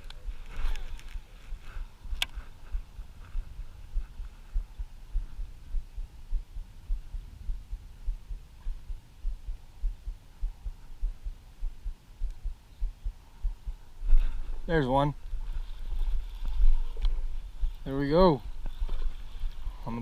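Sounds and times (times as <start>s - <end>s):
low thumps on microphone: 1.5s - 14.7s.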